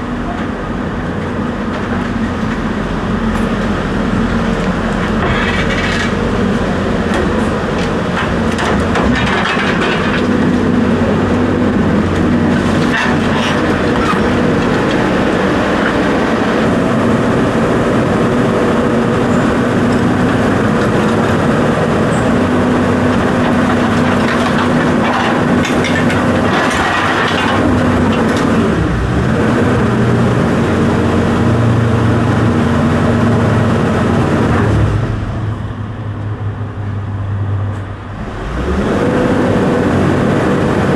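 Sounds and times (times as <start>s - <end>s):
large engine running: 0.0s - 40.9s
rattling and clatter: 5.0s - 10.7s, 12.1s - 16.1s, 22.9s - 28.6s.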